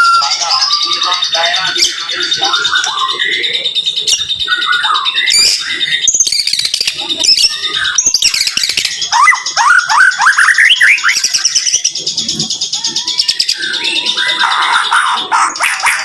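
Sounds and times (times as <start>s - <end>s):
songbird singing varied whistles: 3.8s - 11.8s.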